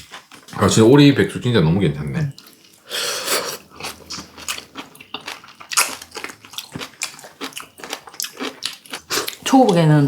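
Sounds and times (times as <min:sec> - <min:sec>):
person chewing and smacking: 0:00.0 - 0:00.6, 0:02.3 - 0:09.9.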